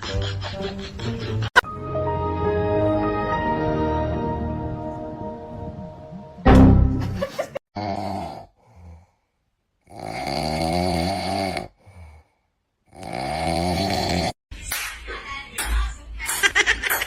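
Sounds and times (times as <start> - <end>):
pet snoring: 12.9 - 14.4.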